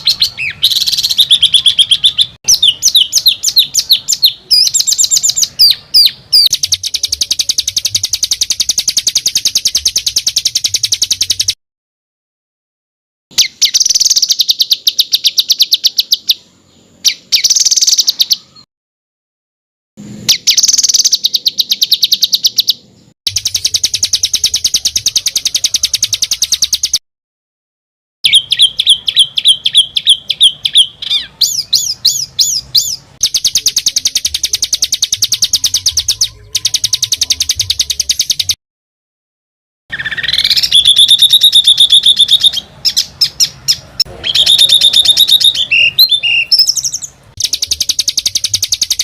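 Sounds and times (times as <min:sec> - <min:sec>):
songbird rattling trills: 0:00.0 - 0:11.6, 0:20.3 - 0:27.0, 0:28.3 - 0:38.6, 0:39.9 - 0:49.0.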